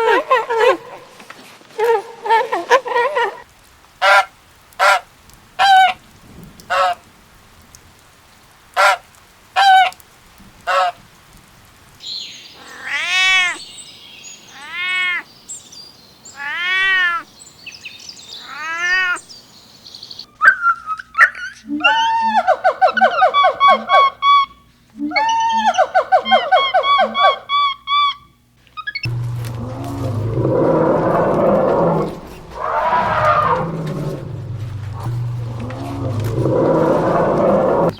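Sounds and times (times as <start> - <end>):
animal calls: 20.3 - 37.9.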